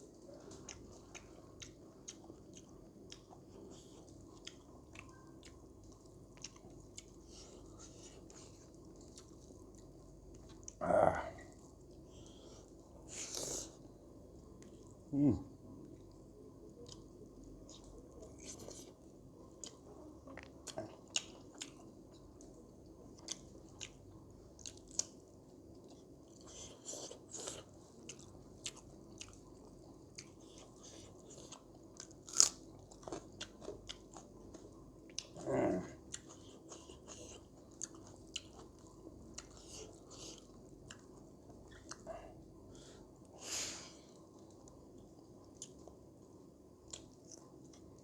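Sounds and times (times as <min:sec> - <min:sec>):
person chewing food: 0:00.1 - 0:10.8, 0:15.8 - 0:48.0
food crunching: 0:19.5 - 0:42.0.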